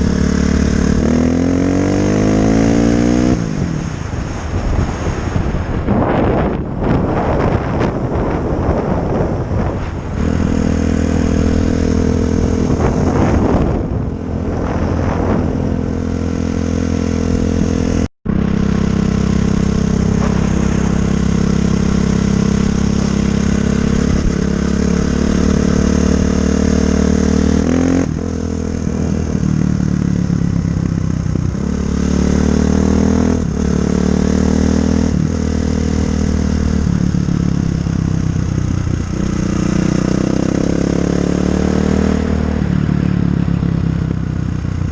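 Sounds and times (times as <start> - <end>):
dirt bike engine revving: 0.0 - 3.5, 7.2 - 30.6, 31.5 - 43.0.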